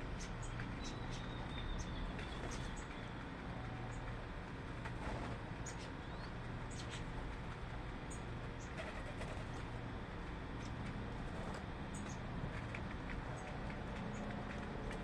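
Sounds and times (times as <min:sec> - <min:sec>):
steady low hum: 0:00.0 - 0:15.0
small birds chirping: 0:00.1 - 0:04.2, 0:05.6 - 0:07.1, 0:11.9 - 0:12.3, 0:13.3 - 0:14.6.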